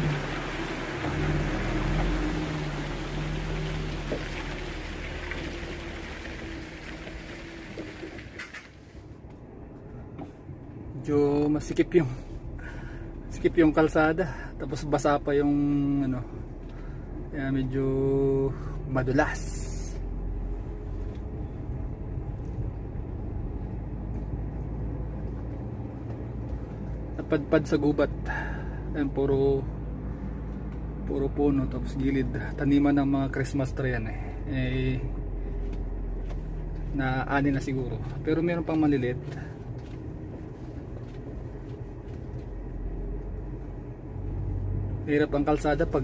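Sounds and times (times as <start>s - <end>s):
truck engine running: 0.0s - 8.1s
road noise: 0.0s - 46.0s
truck engine rumbling: 0.0s - 46.0s.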